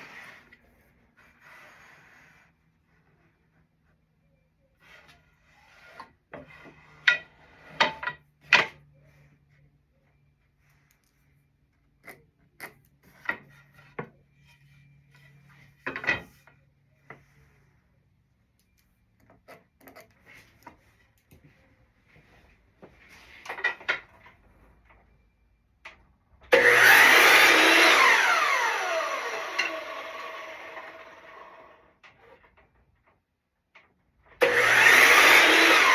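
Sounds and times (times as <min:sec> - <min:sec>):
power saw motor: 0:26.5 - 0:31.8, 0:34.4 - 0:35.9.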